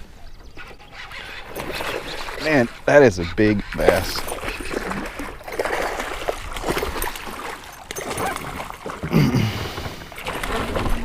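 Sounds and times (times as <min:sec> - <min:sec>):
water splashing and dripping: 0:03.7 - 0:11.0.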